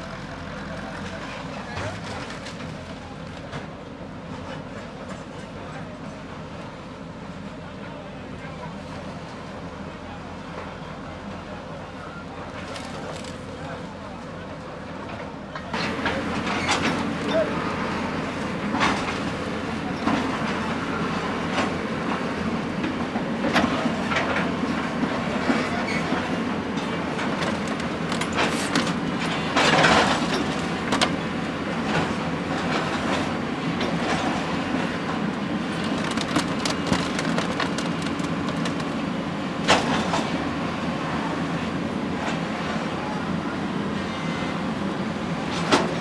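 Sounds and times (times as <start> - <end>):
heavy machinery rumbling: 10.5 - 43.4
loud clatter: 25.4 - 34.4, 35.6 - 40.3
clanks and knocks: 26.8 - 33.2, 35.7 - 40.3.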